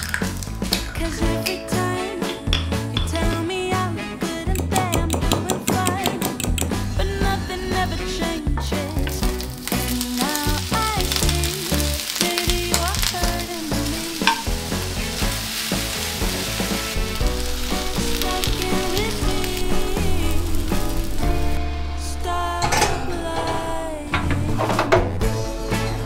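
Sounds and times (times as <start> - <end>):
music with singing: 0.6 - 26.0
food sizzling in a pan: 8.9 - 21.6.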